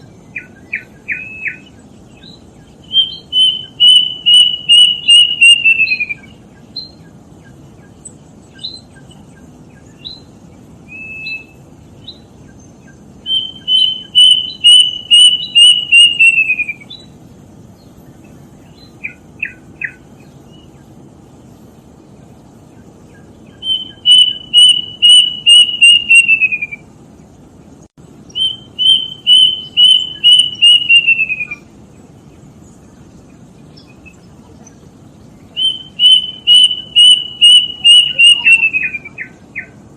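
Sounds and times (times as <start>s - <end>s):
cuckoo whistling song: 0.0s - 17.2s, 18.2s - 20.8s, 23.1s - 26.9s, 28.3s - 31.7s, 35.4s - 39.8s
other birds chirping: 0.0s - 39.9s.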